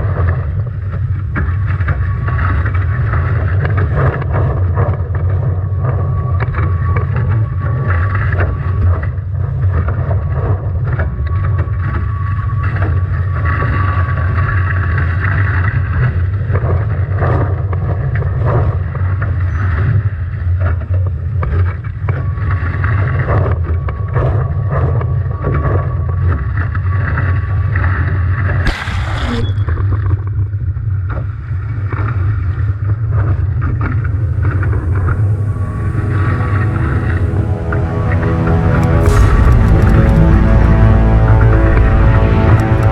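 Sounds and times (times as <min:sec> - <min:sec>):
low rumble: 0:33.3 - 0:42.9
water crash: 0:33.6 - 0:42.9.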